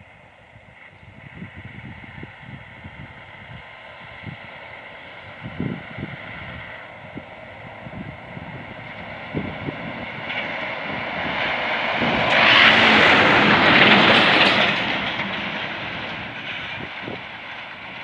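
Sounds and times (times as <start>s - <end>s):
truck driving past: 3.8s - 18.0s.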